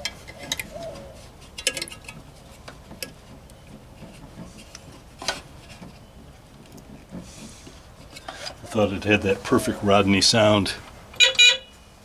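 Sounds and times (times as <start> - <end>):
small tools clicking and tapping: 0.0 - 5.4.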